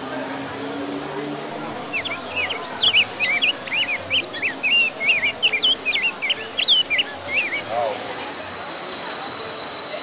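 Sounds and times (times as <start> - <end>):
birds chirping: 1.5 - 8.4.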